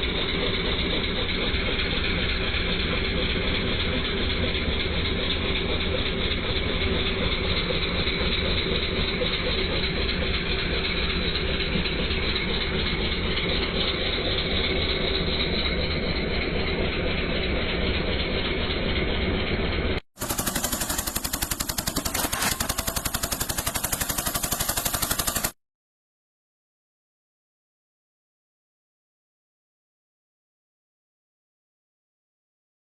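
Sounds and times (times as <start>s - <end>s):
tractor diesel engine running: 0.0s - 25.6s.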